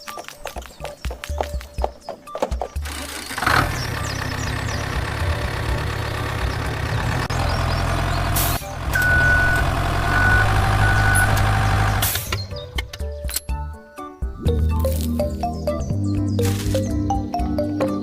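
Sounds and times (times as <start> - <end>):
engine running: 2.8 - 12.7.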